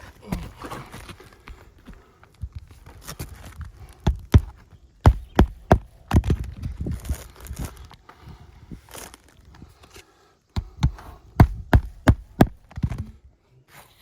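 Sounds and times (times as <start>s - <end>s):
hammer driving nails: 4.0s - 6.4s, 10.6s - 13.1s.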